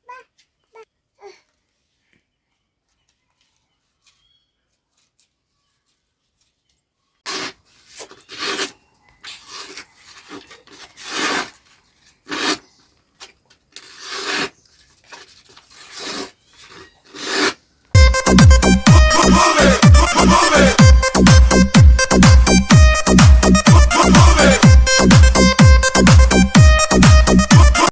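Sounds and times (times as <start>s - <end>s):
irregular scraping strokes: 7.2s - 17.7s.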